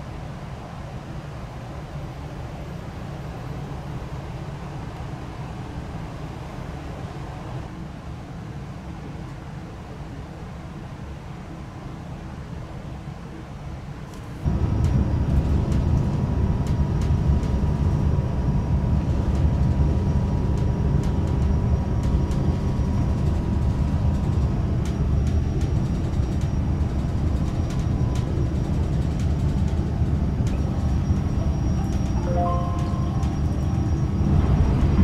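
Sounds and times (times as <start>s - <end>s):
train rumbling inside carriage: 0.0s - 35.0s
faint high whine: 30.6s - 35.0s.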